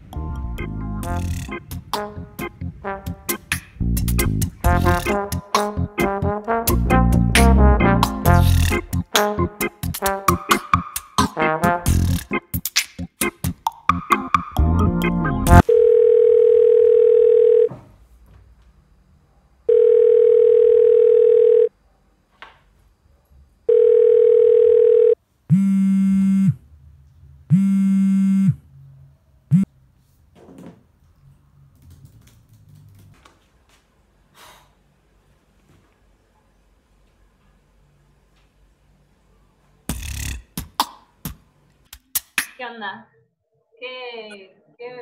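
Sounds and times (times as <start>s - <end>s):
music: 0.0s - 15.6s, 39.9s - 41.0s
telephone ringing tone: 15.6s - 17.7s, 19.7s - 21.7s, 23.7s - 25.2s.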